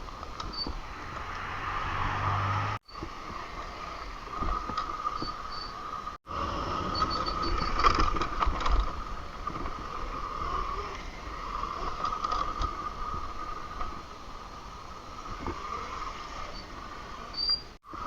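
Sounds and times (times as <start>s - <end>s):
low rumble: 0.7s - 2.8s.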